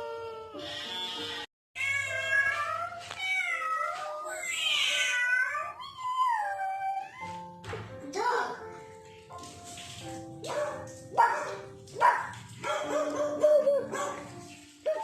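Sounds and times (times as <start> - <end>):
cat meowing: 0.4 - 7.4.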